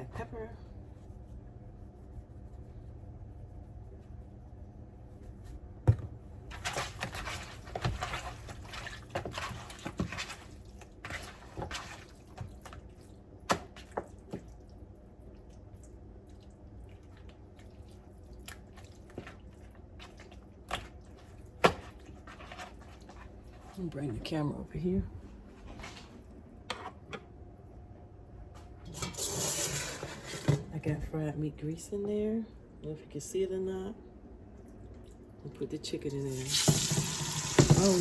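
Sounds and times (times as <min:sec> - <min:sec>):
wet squishing of raw chicken: 0:06.8 - 0:23.2.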